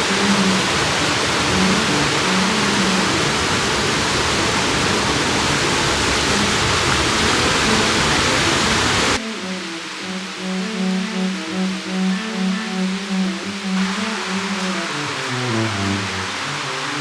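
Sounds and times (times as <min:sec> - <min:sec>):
river water rushing: 0:00.0 - 0:17.0
soft background music: 0:09.2 - 0:16.7.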